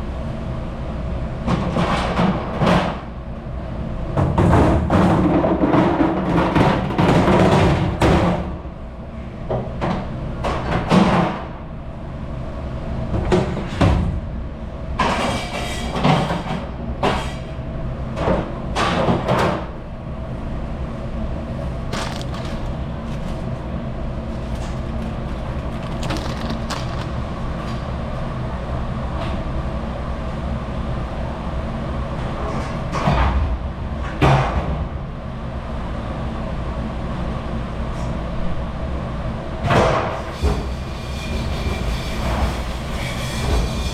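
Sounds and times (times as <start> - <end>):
dishwashing machinery drone: 18.0 - 29.2, 39.6 - 43.9
dishes and racks clattering: 21.7 - 27.8.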